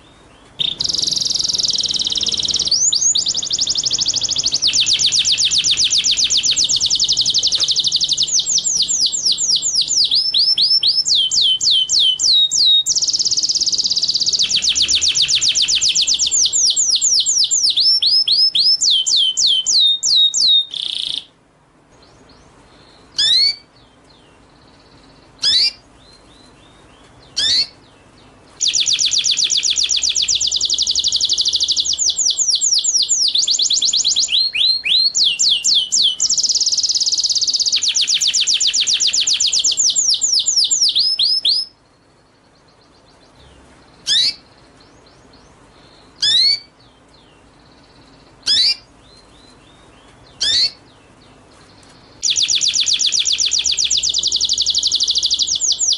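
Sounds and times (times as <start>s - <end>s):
single bird calls: 0.0s - 21.3s, 22.3s - 23.7s, 25.4s - 26.5s, 27.2s - 27.9s, 43.2s - 44.6s, 45.8s - 46.8s, 48.4s - 50.9s
songbird song fast runs: 0.0s - 21.3s, 22.0s - 55.9s.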